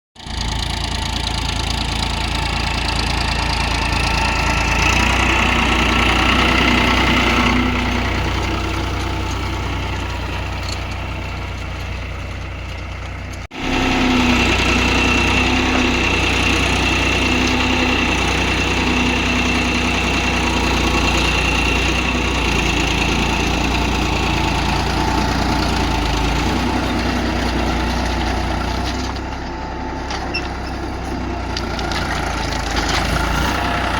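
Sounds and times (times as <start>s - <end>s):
tractor engine running: 0.2s - 33.9s.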